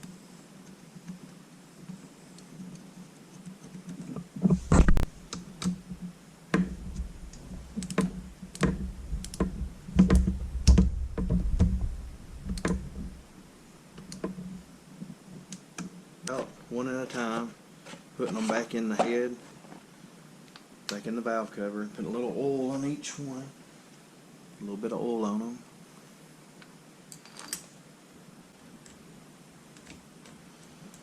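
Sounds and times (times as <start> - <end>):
dull knocks: 6.5 - 13.2
metallic clicks of bolts and tools: 27.1 - 27.7.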